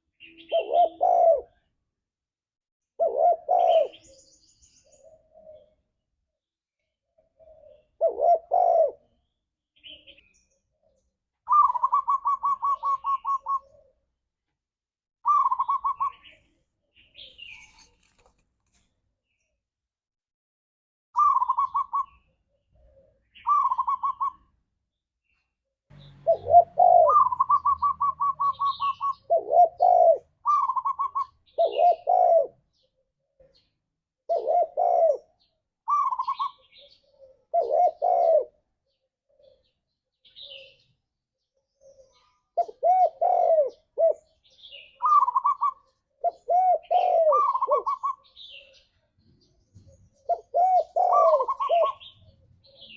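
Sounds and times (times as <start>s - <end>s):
dove stuttering calls: 0.3s - 1.7s, 3.0s - 4.1s, 7.2s - 9.1s, 11.5s - 14.1s, 15.2s - 16.4s, 21.2s - 24.5s, 26.0s - 33.5s, 34.3s - 38.6s, 41.8s - 49.0s, 49.8s - 52.9s
dove rolling coos: 0.5s - 1.6s, 3.0s - 4.0s, 7.4s - 9.1s, 11.5s - 14.1s, 15.2s - 16.1s, 21.2s - 22.2s, 22.8s - 24.5s, 26.2s - 32.6s, 34.3s - 38.6s, 42.6s - 44.3s, 45.0s - 48.8s, 50.2s - 52.9s
faint small bird chirps: 3.0s - 5.8s, 6.8s - 14.0s, 15.2s - 19.6s, 21.2s - 24.6s, 25.2s - 52.9s.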